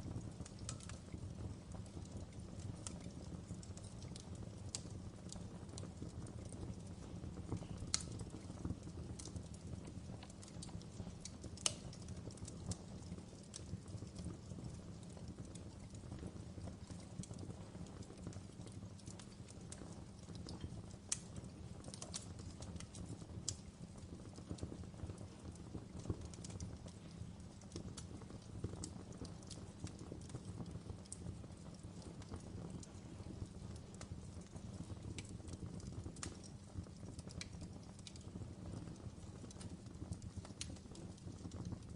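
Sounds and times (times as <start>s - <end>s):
fire popping and snapping: 0.0s - 41.9s
flame rumbling: 0.0s - 41.9s.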